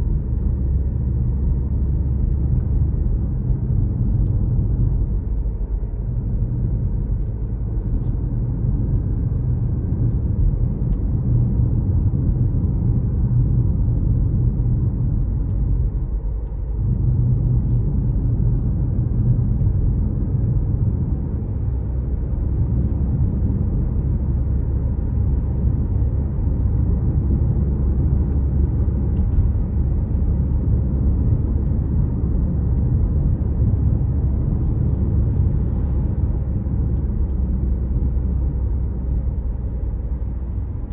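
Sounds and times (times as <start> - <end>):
car engine and tyres rumbling: 0.0 - 40.9.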